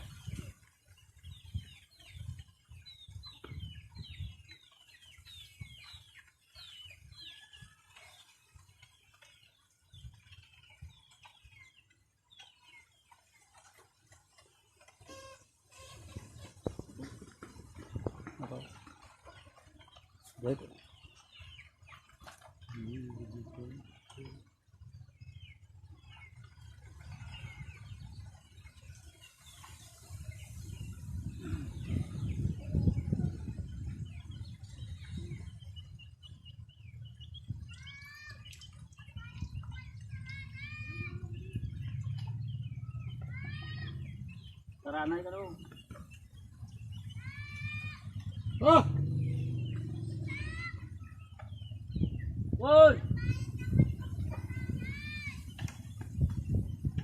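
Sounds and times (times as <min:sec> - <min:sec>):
chicks peeping: 0:00.0 - 0:24.5
small birds chirping: 0:00.0 - 0:57.0.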